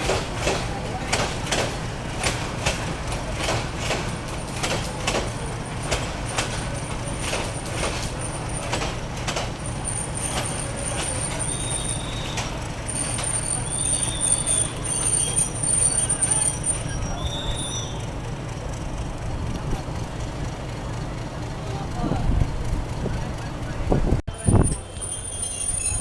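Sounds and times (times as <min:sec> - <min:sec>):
rail clacks: 0:00.0 - 0:21.6, 0:24.3 - 0:26.0
train rumbling on rails: 0:00.0 - 0:26.0
high wheel squeal: 0:04.0 - 0:18.6, 0:24.3 - 0:26.0.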